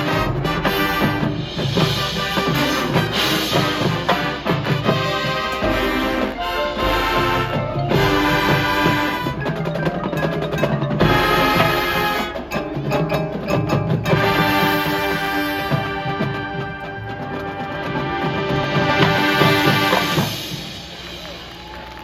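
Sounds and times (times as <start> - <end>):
bass drums: 0.0 - 16.6
marching band playing: 0.0 - 22.0
snare drums: 0.0 - 22.0.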